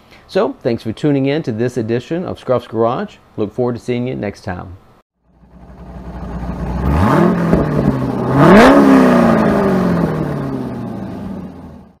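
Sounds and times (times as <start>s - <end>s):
car engine revving: 5.3s - 12.0s.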